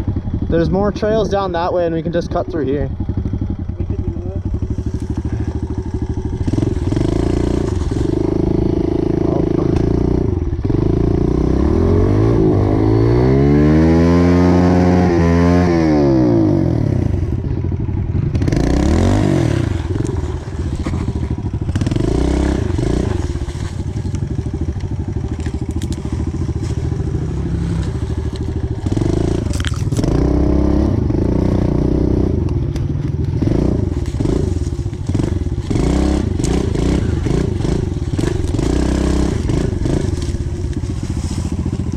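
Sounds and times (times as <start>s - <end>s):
bike rattling and scraping: 0.0s - 41.9s
small motorbike engine revving: 2.1s - 41.9s.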